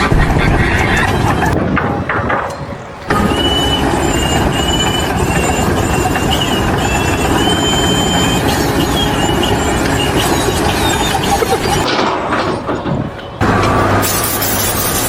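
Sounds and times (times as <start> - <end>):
heavy machinery rumble: 0.0 - 15.0
high wavering squeal: 0.0 - 15.0.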